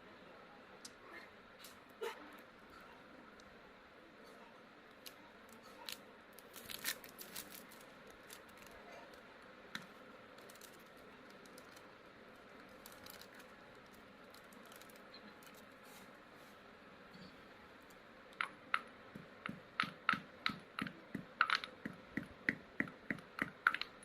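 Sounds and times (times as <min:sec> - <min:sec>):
crunchy material crackling under stone: 0:04.9 - 0:16.1.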